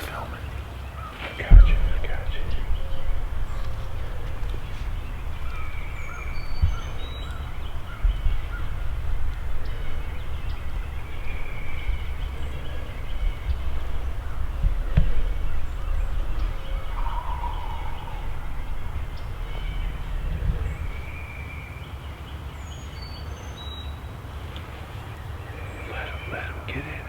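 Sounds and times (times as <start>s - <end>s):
steady low rumble: 0.0s - 27.0s
wild birds chirping: 0.0s - 27.0s
thumps on microphone: 1.2s - 21.3s.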